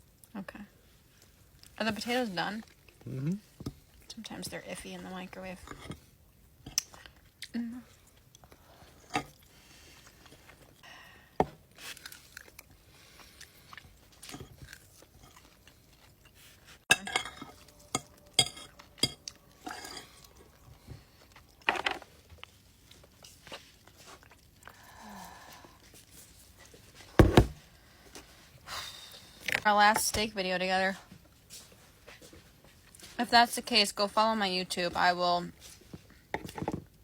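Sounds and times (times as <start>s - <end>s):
person chewing: 6.7s - 10.8s, 11.8s - 16.6s, 17.6s - 24.9s
cutlery clinking on plates: 16.9s - 20.3s.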